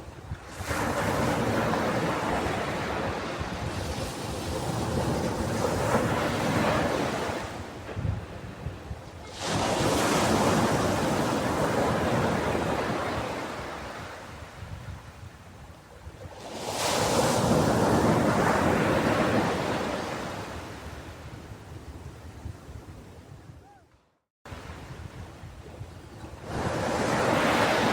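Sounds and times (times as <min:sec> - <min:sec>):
ocean waves breaking: 0:00.4 - 0:14.4, 0:16.4 - 0:21.2, 0:26.2 - 0:27.9.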